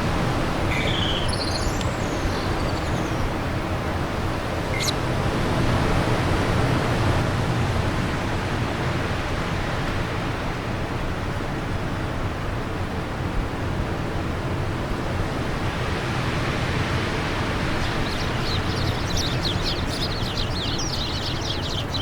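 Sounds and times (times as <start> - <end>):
bird chirps: 0.5 - 3.5, 4.7 - 5.0, 17.2 - 22.0
rushing wind: 14.1 - 22.0.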